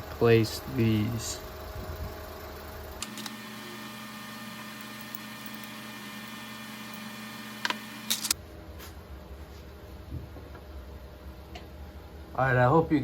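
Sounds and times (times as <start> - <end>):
faint hum: 0.0 - 13.0
parts clicking: 3.0 - 3.4, 7.6 - 8.4.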